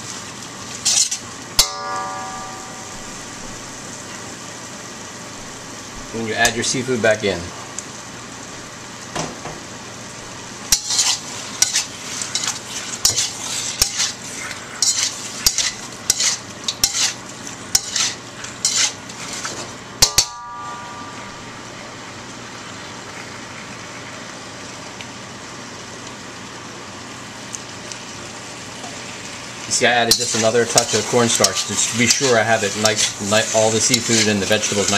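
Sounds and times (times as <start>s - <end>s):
food sizzling: 0.0s - 34.9s
utensil scraping a wok: 0.7s - 1.7s, 10.7s - 20.2s, 29.9s - 34.9s
sharp metallic knocks: 1.6s - 3.1s, 20.0s - 21.1s.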